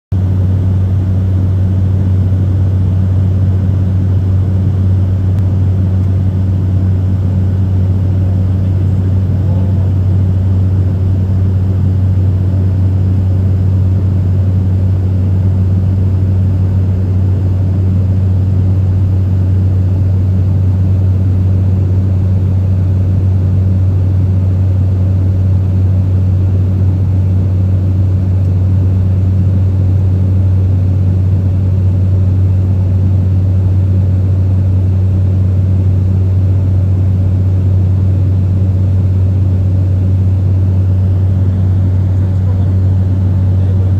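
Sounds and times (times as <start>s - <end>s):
airliner cabin drone: 0.1s - 43.9s.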